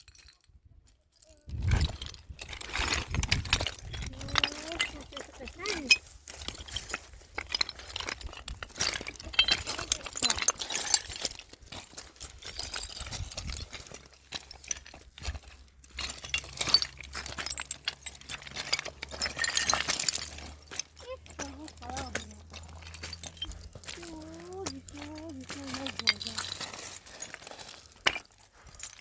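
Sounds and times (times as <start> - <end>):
hard objects clinking and scraping: 1.2 - 29.0.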